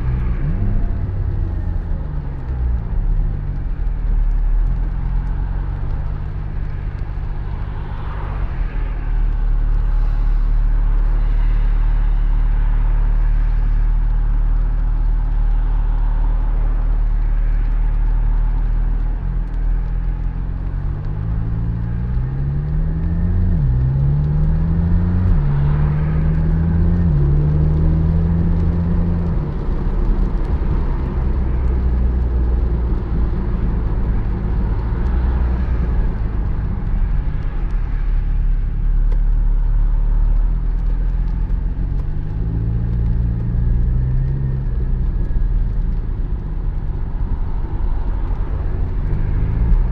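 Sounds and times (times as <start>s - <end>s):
road rumble: 0.0s - 49.9s
car engine revving: 20.7s - 37.4s.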